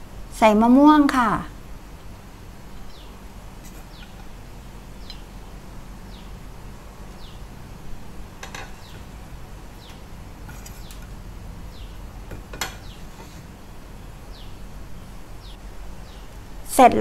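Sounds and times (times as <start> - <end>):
steady low hum: 0.0 - 17.0
bird chirping: 2.7 - 4.3, 4.9 - 5.4, 6.0 - 6.4, 7.0 - 7.5, 8.5 - 13.4, 14.2 - 16.3.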